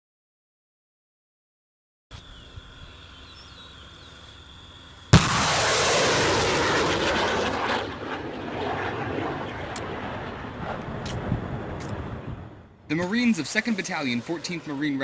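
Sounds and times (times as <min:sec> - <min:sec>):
rocket motor rushing: 0:05.1 - 0:08.0
rocket launch blast: 0:05.1 - 0:12.3.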